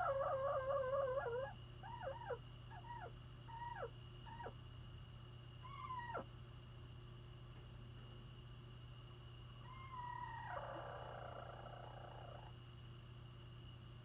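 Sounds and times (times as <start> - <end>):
chickens calling: 0.0 - 3.9.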